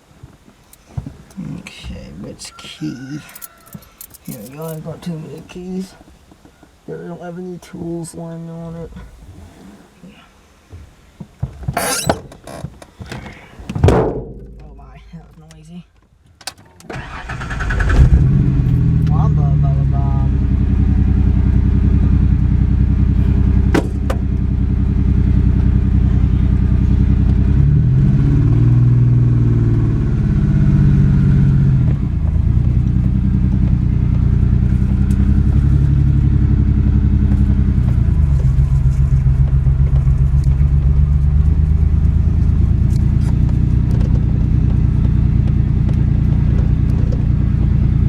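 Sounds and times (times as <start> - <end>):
rough misfiring car engine: 13.8 - 15.1, 16.9 - 48.0.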